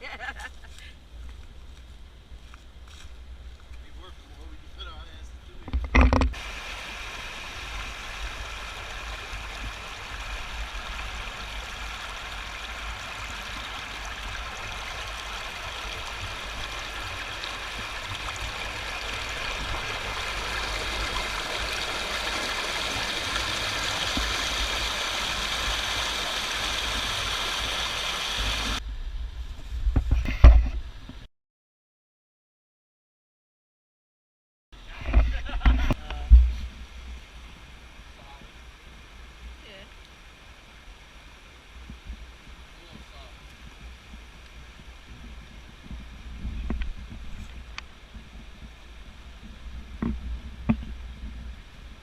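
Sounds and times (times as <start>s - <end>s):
creek water rushing: 6.3s - 28.8s, 36.8s - 52.0s
low wind rumble on microphone: 40.5s - 52.0s.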